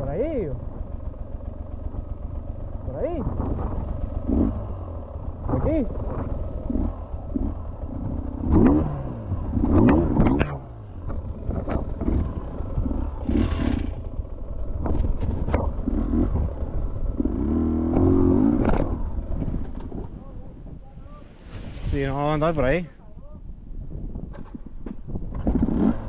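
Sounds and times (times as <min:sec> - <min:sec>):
knocks and clatter over rough ground: 0:00.4 - 0:20.2, 0:24.1 - 0:26.0
dirt bike engine revving: 0:02.8 - 0:10.7, 0:12.0 - 0:15.0, 0:15.8 - 0:19.2.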